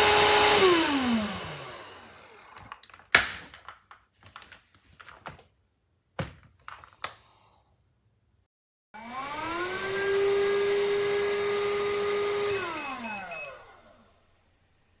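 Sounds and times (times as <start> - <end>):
vacuum motor whine: 0.0 - 2.8, 9.0 - 15.0.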